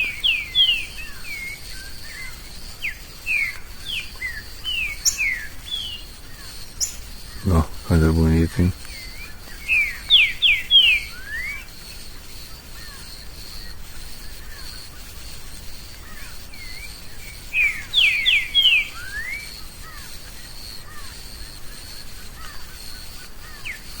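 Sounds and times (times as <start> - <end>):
bird whistling: 0.0 - 6.1, 6.8 - 7.5, 9.0 - 11.7, 17.5 - 19.6.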